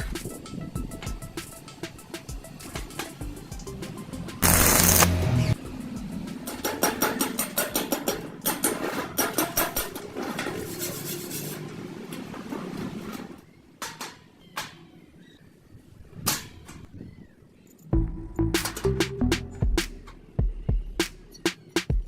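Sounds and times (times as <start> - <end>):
knocks and clatter: 6.3 - 10.8.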